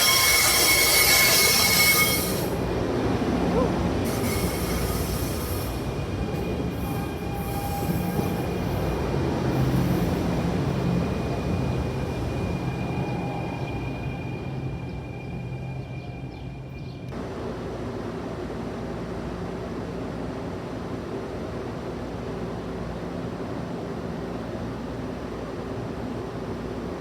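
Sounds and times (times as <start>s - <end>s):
train wheels squealing: 0.0s - 2.6s, 3.6s - 17.1s
train cars rumbling by: 0.0s - 27.0s.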